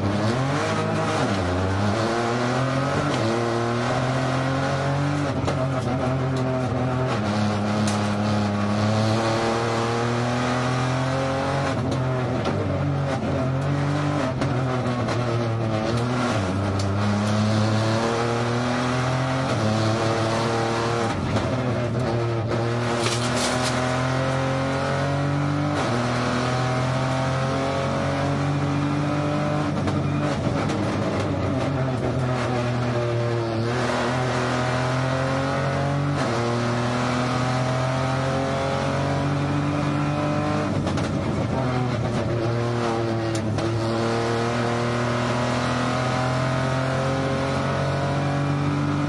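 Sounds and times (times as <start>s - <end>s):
rally car engine revving: 0.0s - 49.0s.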